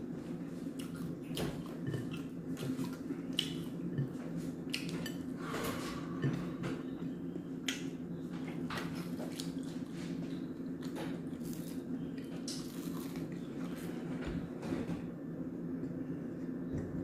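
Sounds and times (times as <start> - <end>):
steady low hum: 0.0 - 17.0
chewing: 0.7 - 5.3.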